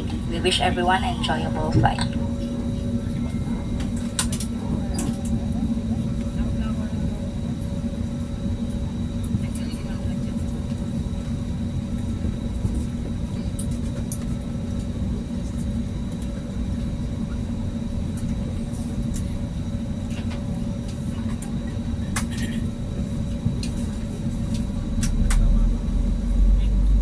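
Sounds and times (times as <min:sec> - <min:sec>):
aircraft cabin rumble: 0:00.0 - 0:27.0.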